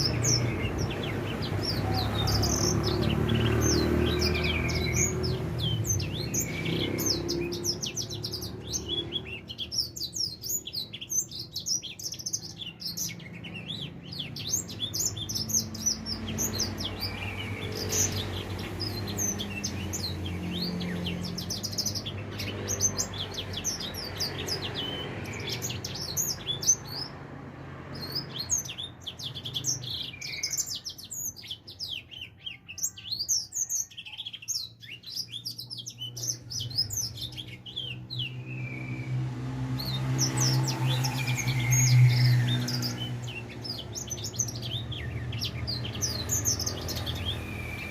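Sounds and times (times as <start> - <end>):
finch twittering song: 0.0 - 47.9.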